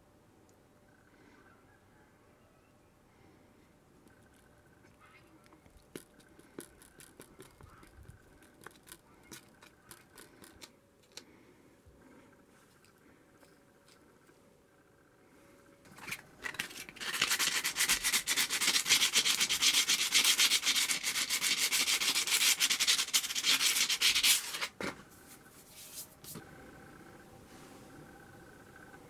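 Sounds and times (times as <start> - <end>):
hand scrubbing a kettlebell: 16.0 - 24.7.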